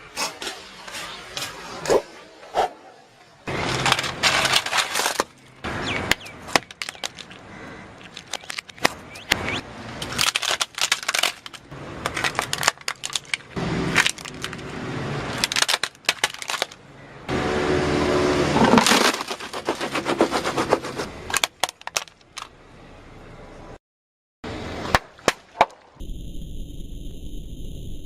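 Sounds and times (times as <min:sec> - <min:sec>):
brittle material crunching and cracking: 0:03.5 - 0:05.6, 0:06.5 - 0:09.0, 0:10.0 - 0:16.8, 0:18.7 - 0:20.6.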